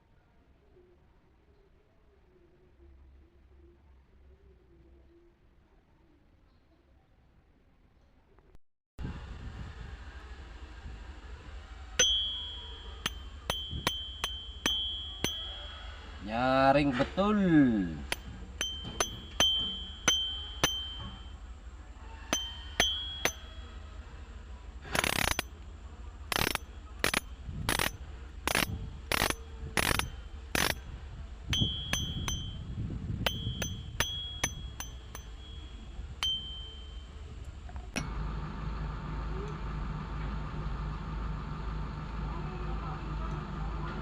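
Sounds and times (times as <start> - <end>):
steady low hum: 9.1 - 44.0
fishing reel drag clicking: 25.0 - 25.4, 26.3 - 30.8.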